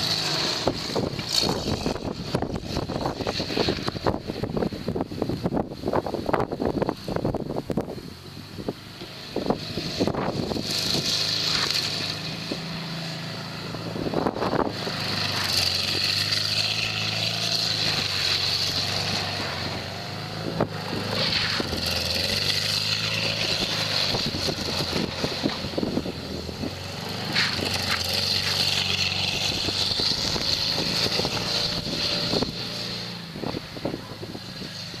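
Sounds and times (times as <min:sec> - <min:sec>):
car engine revving hard: 0:00.0 - 0:04.7, 0:09.3 - 0:35.0.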